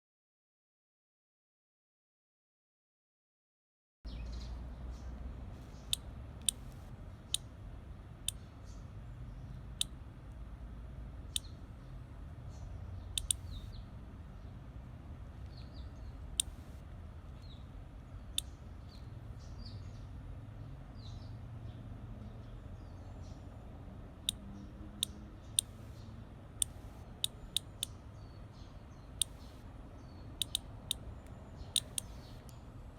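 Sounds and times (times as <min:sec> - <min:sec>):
steady low hum: 0:04.4 - 0:32.9
sharp clicks: 0:05.7 - 0:07.5, 0:08.2 - 0:08.5, 0:09.7 - 0:10.4, 0:11.2 - 0:11.6, 0:13.1 - 0:13.8, 0:15.4 - 0:17.6, 0:24.2 - 0:28.0, 0:29.1 - 0:29.7, 0:30.3 - 0:32.6.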